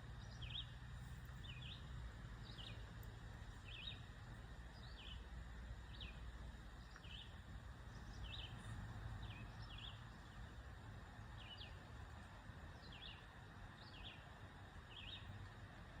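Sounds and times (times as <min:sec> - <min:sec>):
faint outdoor background noise: 0:00.0 - 0:16.0
small bird chirping: 0:01.4 - 0:02.9, 0:03.5 - 0:04.1, 0:05.9 - 0:10.2.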